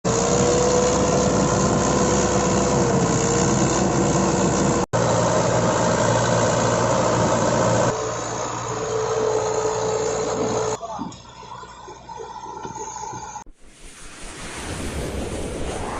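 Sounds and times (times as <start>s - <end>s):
tractor diesel engine running: 0.1s - 13.5s.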